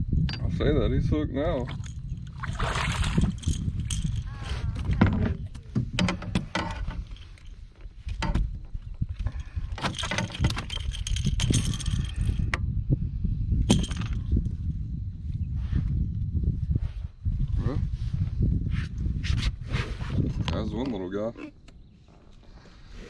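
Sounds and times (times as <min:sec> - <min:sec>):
fish knocking and rattling in kayak: 0:01.7 - 0:12.5, 0:13.7 - 0:14.4.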